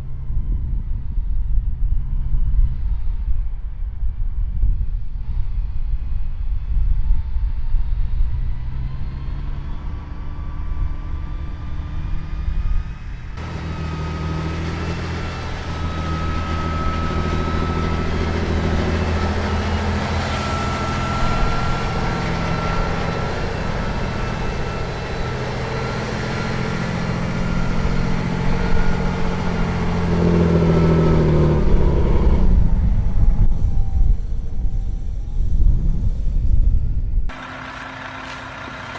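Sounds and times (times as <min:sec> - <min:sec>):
truck engine running: 0:08.6 - 0:35.0, 0:37.3 - 0:38.9
steady whine: 0:09.6 - 0:38.9.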